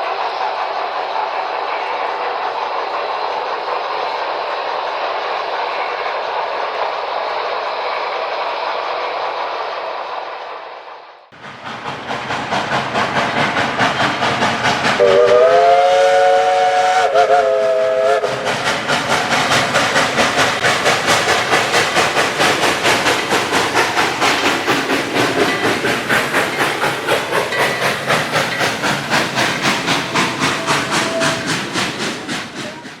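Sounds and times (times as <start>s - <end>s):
rapid locomotive chuffing: 0.0s - 33.0s
chord steam whistle: 15.0s - 18.5s, 30.0s - 32.9s.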